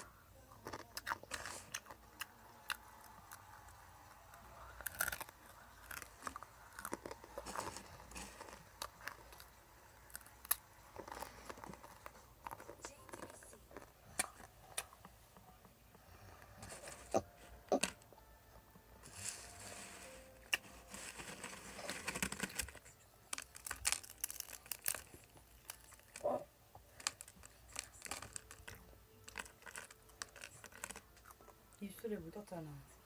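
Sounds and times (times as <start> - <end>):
plastic snack packet crinkling: 0.0 - 14.9, 19.0 - 31.8
crunchy snack being eaten: 0.5 - 15.0, 20.5 - 31.6.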